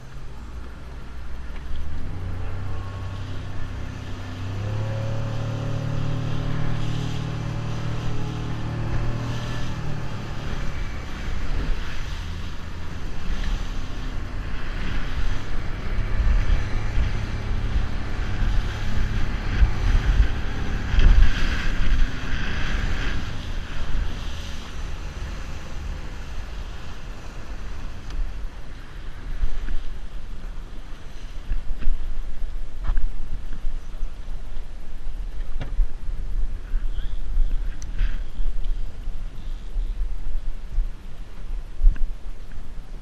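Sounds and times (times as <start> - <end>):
water noise: 0.0 - 43.0
wind buffeting microphone: 0.0 - 43.0
outboard motor running: 0.2 - 27.8.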